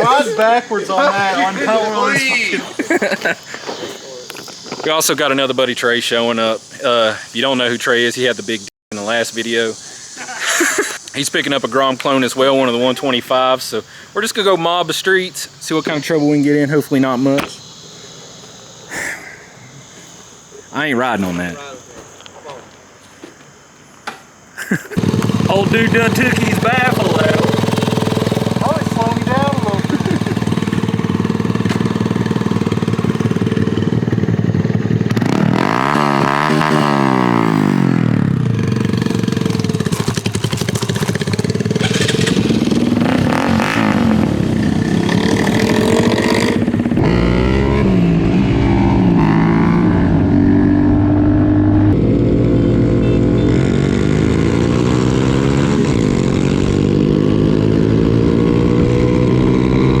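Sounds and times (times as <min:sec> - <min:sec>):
mini motorcycles racing: 0:00.0 - 0:03.7, 0:25.0 - 1:00.0.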